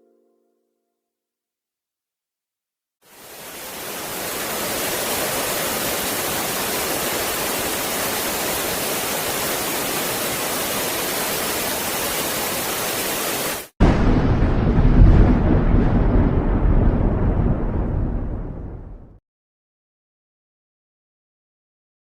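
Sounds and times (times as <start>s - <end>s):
heavy rain: 3.0s - 19.0s.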